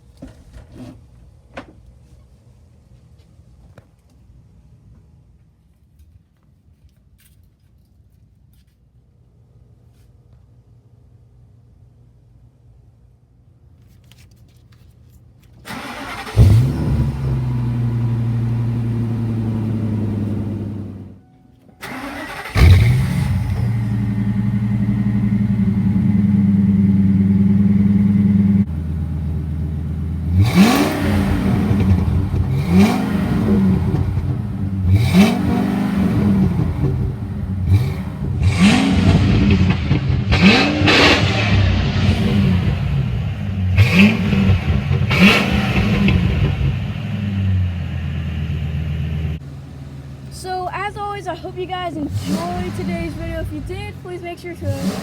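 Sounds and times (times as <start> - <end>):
engine cranking and starting: 15.6 - 21.1, 21.8 - 25.7, 51.9 - 55.0
engine idling: 15.7 - 21.2, 21.8 - 55.0
engine revving in short blips: 15.7 - 21.2, 21.8 - 49.4, 52.0 - 55.0.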